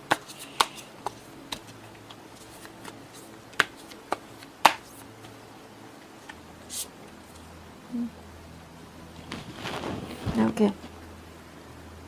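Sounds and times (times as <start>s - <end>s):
faint room hum: 0.0s - 12.0s
cards clicking on a table: 0.1s - 5.4s.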